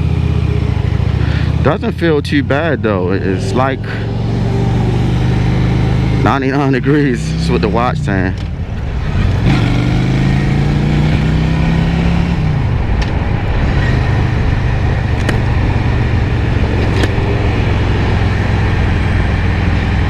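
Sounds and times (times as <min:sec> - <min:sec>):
motorcycle engine running: 0:00.0 - 0:20.0
wind rushing over microphone: 0:08.0 - 0:20.0.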